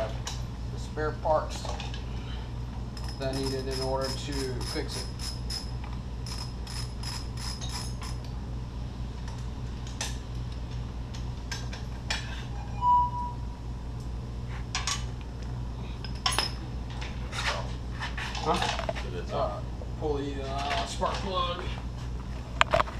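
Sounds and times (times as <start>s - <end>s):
steady low hum: 0.0s - 22.9s
tools and metal parts clinking: 3.0s - 8.3s, 16.0s - 16.6s.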